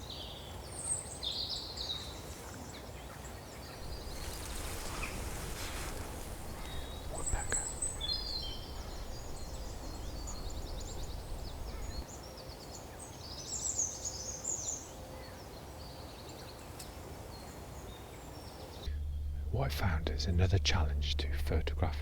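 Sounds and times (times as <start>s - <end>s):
songbirds chirping: 0.0s - 22.0s
faint woodland hiss: 0.7s - 12.1s
low wind rumble: 3.8s - 12.0s, 18.9s - 22.0s.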